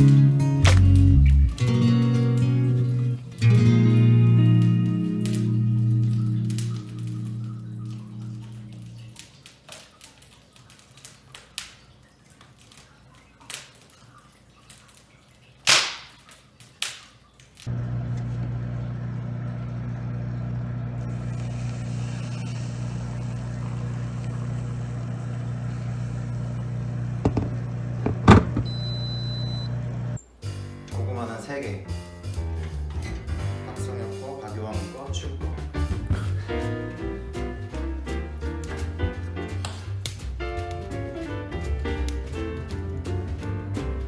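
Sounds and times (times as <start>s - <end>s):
wood fire crackling and popping: 0.0s - 35.2s, 35.8s - 44.0s
steady low hum: 17.7s - 30.2s.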